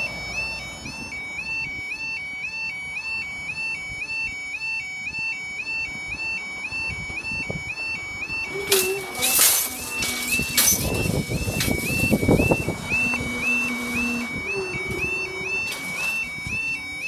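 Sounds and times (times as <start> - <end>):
level crossing two-tone warble: 8.5 - 16.7.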